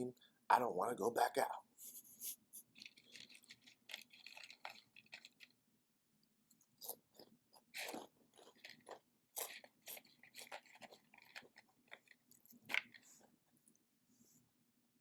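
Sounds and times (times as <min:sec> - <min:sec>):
person chewing crunchy food: 0:02.6 - 0:05.6, 0:06.5 - 0:13.8.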